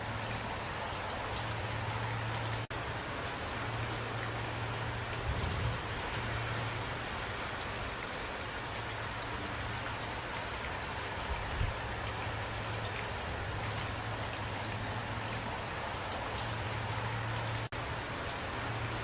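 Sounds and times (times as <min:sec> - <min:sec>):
steady rain: 0:00.0 - 0:19.0
raindrop ticks: 0:06.0 - 0:06.9.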